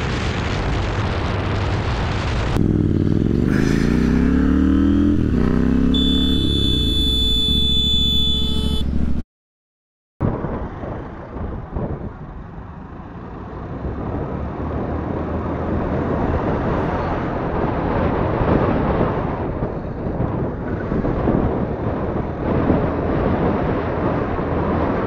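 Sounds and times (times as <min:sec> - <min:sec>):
wind rushing over microphone: 0:00.0 - 0:06.2, 0:10.2 - 0:25.0
motorcycle engine running: 0:02.6 - 0:09.2.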